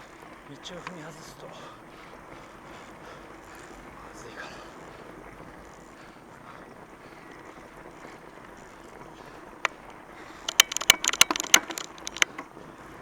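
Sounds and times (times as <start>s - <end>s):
bike tires rushing on snow: 0.0s - 13.0s
sharp click: 10.5s - 12.4s.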